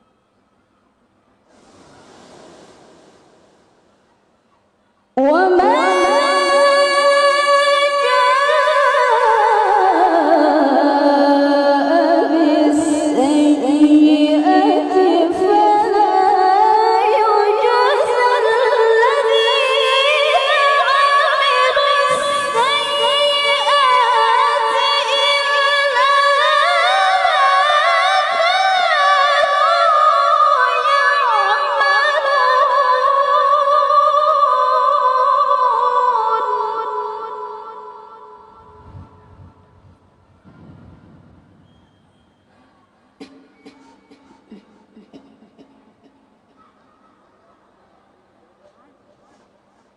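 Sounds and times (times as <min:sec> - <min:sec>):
woman chanting melismatic recitation: 0:05.2 - 0:39.6.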